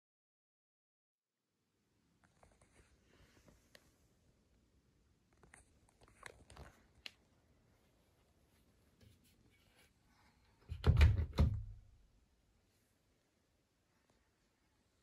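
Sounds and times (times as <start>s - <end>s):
washing machine door thunking shut: 10.7s - 11.8s.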